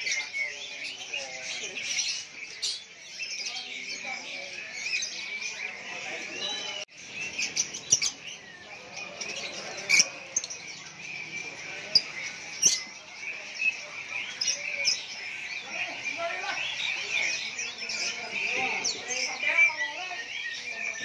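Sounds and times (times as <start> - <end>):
sharp bird calls: 0.0 - 21.0
songbirds chirping and whistling: 0.0 - 21.0.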